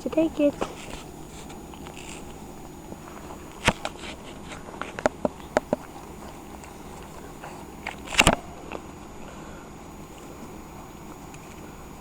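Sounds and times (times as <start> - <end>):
puppy claws clicking: 4.9 - 9.0.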